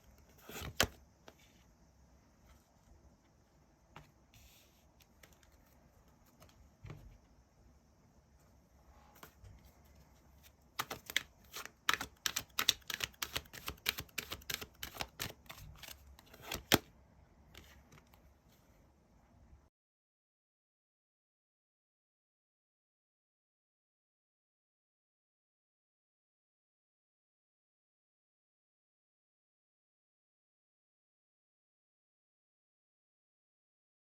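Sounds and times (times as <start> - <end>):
cards being shuffled: 0.3 - 1.4, 10.4 - 16.9.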